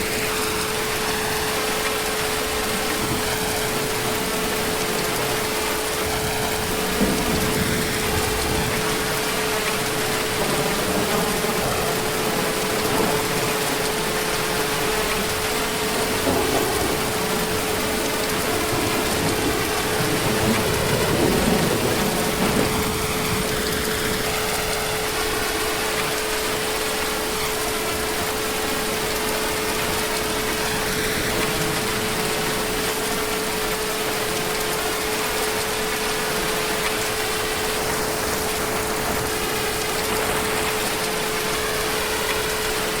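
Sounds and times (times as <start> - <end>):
heavy rain: 0.0 - 43.0
distant thunder rumble: 2.8 - 24.7.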